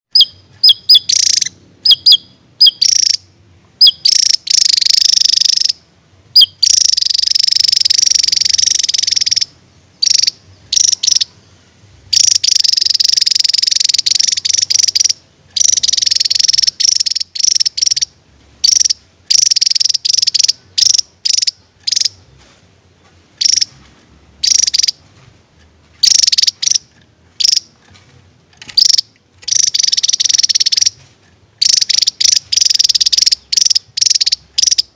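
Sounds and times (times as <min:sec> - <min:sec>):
short sharp bird notes: 0:00.1 - 0:05.8
bird fast trilling song: 0:00.1 - 0:22.4, 0:23.4 - 0:25.2, 0:25.9 - 0:27.8, 0:28.6 - 0:34.9.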